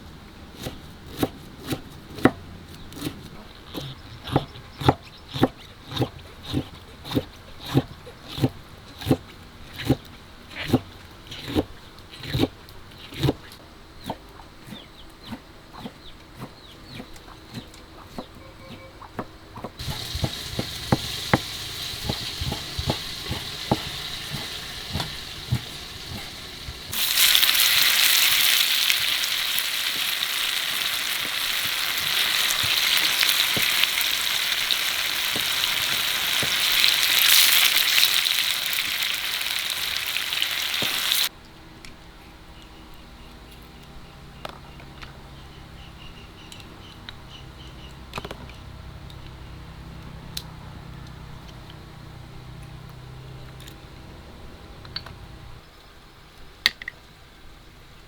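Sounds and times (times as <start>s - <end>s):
utensil knocking: 18.2s - 37.6s
food sizzling in hot oil: 19.8s - 41.3s.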